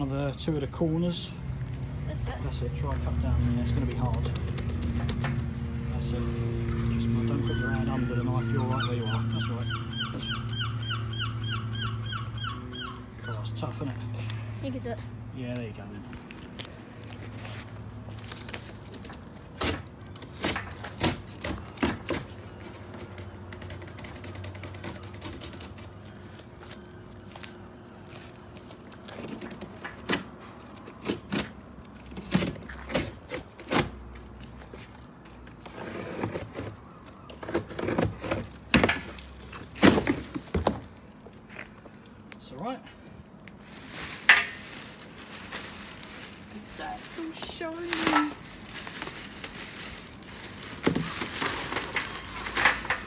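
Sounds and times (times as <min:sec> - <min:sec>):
sharp cracks and knocks: 0:37.3 - 0:40.8
cardboard crackling and rustling: 0:43.6 - 0:53.0
cardboard ripping: 0:43.8 - 0:53.0.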